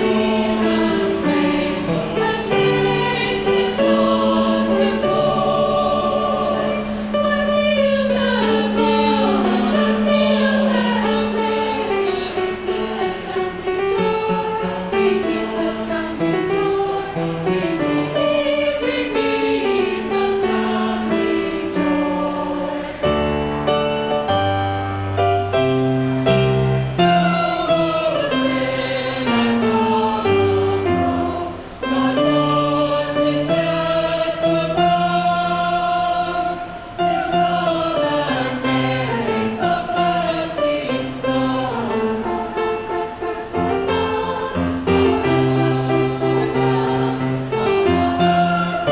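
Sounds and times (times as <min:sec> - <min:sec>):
chamber choir singing in harmony: 0:00.0 - 0:48.9.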